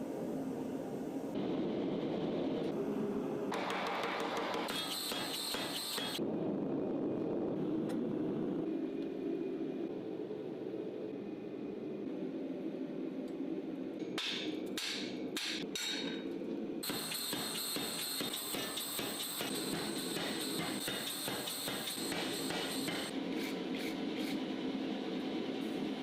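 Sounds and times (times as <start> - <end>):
steady low hum: 6.2 - 17.9.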